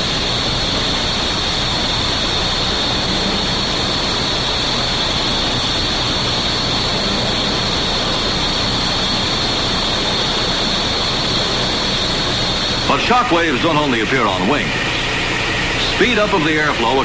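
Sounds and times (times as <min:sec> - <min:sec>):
jet aircraft rushing noise: 0:00.0 - 0:17.0.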